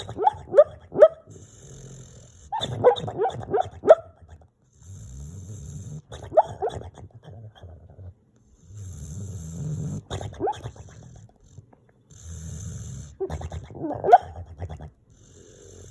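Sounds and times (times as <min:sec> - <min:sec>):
dog yips and whimpers: 0:00.0 - 0:01.2, 0:02.5 - 0:04.2, 0:06.2 - 0:06.8, 0:10.2 - 0:10.7, 0:13.2 - 0:14.4
dog snoring: 0:01.3 - 0:03.6, 0:04.3 - 0:15.9.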